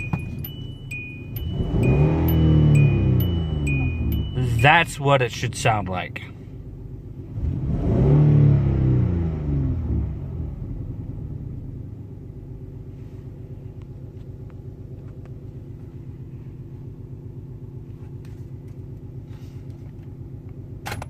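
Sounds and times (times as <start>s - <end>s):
car engine idling: 0.0s - 7.4s, 10.4s - 21.0s.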